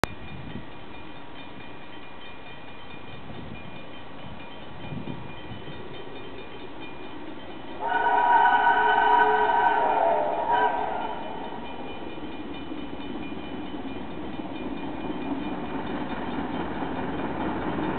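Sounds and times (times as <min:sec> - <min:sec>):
steam train running: 0:00.1 - 0:17.9
steam whistle blowing: 0:07.8 - 0:11.4.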